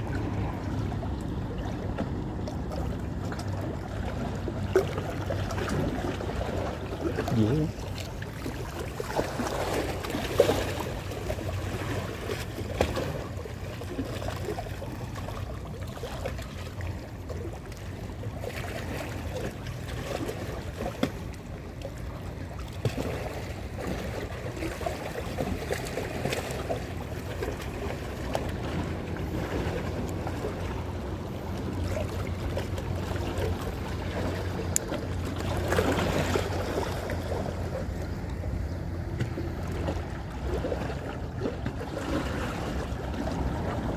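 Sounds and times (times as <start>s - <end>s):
sea water lapping: 0.0s - 43.9s
wind rumble on microphone: 24.6s - 43.9s.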